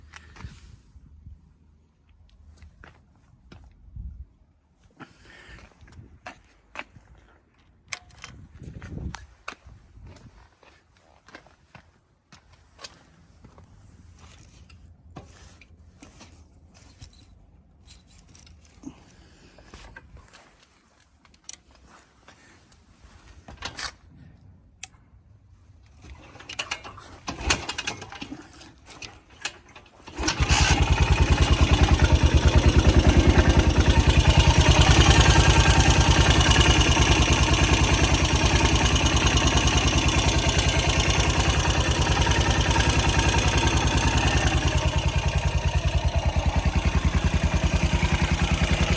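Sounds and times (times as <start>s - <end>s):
motorcycle engine starting and idling: 26.0s - 48.9s.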